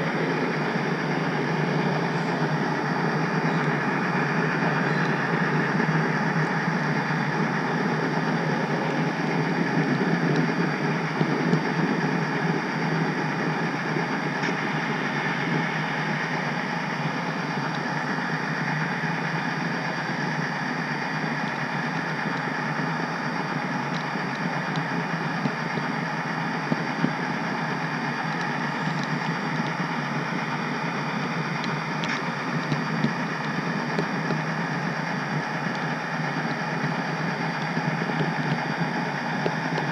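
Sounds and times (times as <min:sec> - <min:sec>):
model train wheels rumbling on track: 0:00.0 - 0:39.9.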